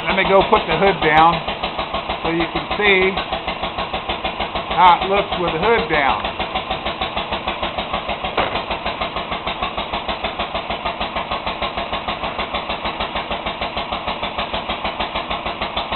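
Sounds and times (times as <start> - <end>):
single-cylinder engine running: 0.0 - 15.9
short knock: 8.3 - 8.7.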